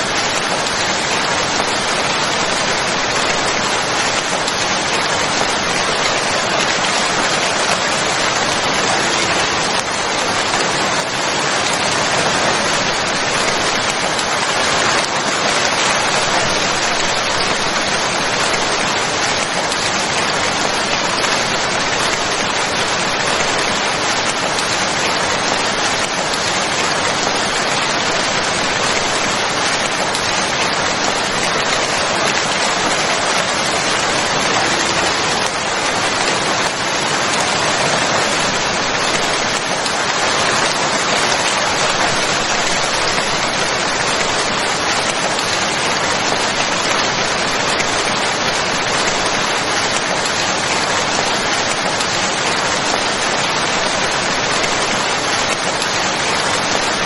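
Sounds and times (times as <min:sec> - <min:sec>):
heavy rainfall: 0:00.0 - 0:57.0.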